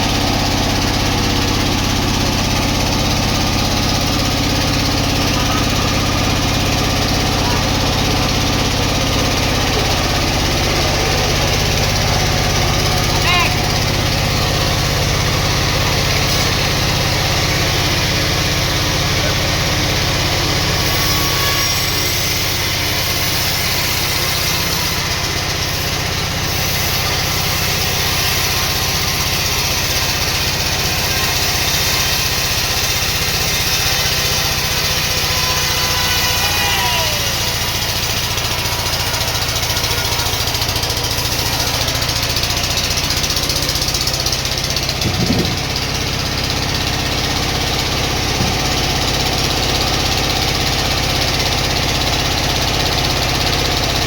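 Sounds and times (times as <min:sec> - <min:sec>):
sawmill machinery humming: 0:00.0 - 0:54.0
short knocks: 0:45.0 - 0:45.9, 0:48.3 - 0:48.9.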